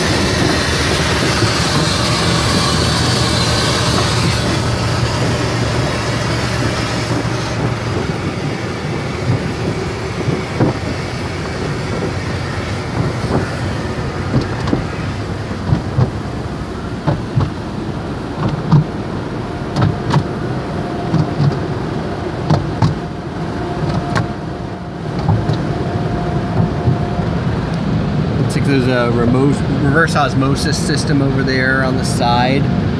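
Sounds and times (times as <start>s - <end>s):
machinery hum: 0.0s - 32.9s
cloth brushes knocking on car: 15.6s - 16.2s, 17.0s - 17.6s, 18.4s - 19.0s, 25.2s - 25.7s.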